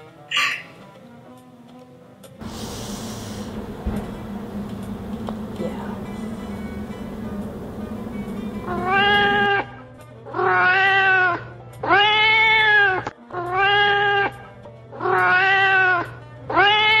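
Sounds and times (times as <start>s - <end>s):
guitar music: 2.4s - 9.6s
cat meowing: 10.4s - 14.3s, 15.0s - 17.0s.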